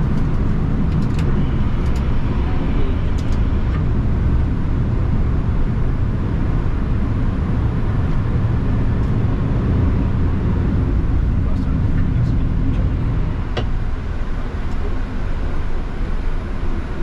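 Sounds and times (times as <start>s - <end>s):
aircraft engines low rumble: 0.0s - 17.0s.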